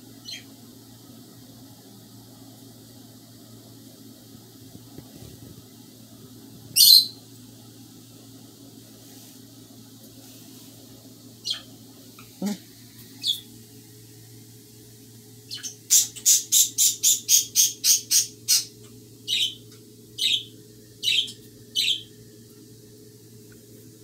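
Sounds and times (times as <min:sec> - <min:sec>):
bird sharp calls: 0:06.8 - 0:07.2, 0:20.2 - 0:22.1.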